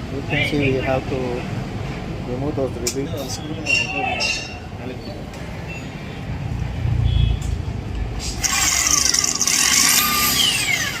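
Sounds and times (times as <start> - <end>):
electric drill whining: 8.4 - 11.0.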